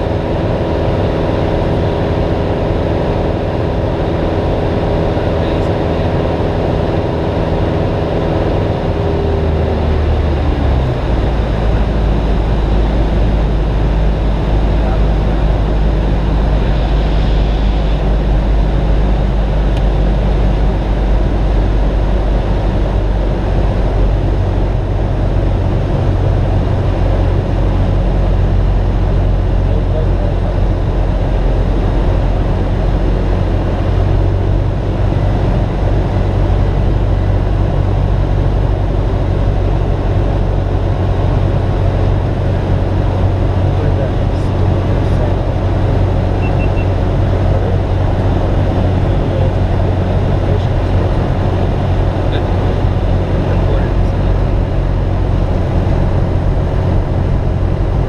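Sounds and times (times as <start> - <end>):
light aircraft engine drone: 0.0 - 58.0.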